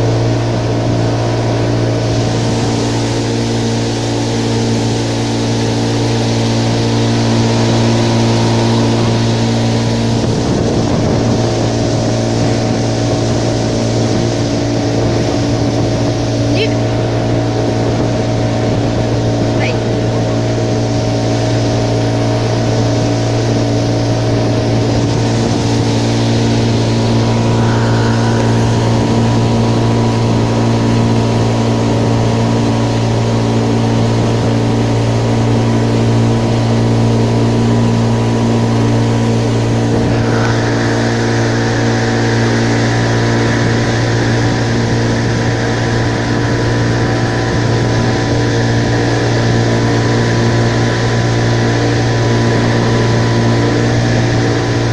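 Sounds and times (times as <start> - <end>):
motorboat engine running: 0.0 - 54.9
high hiss: 24.6 - 31.5, 39.0 - 48.6.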